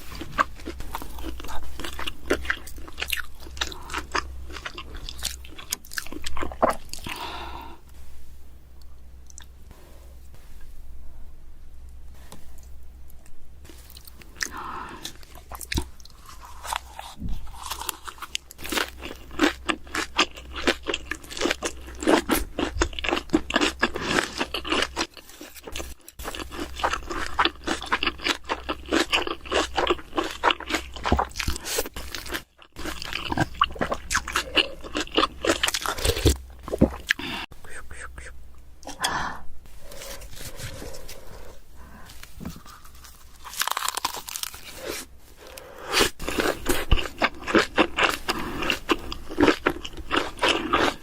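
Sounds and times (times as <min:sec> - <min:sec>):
person chewing and crunching food: 0:00.0 - 0:07.7, 0:12.3 - 0:39.1, 0:39.7 - 0:51.0.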